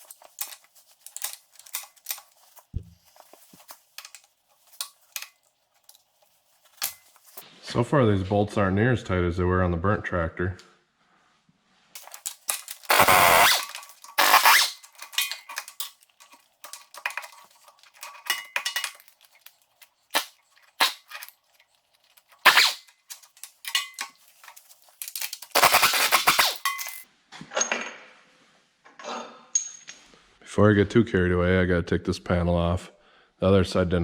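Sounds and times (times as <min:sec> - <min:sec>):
impact wrench rattling: 0:00.0 - 0:07.4, 0:12.0 - 0:27.1.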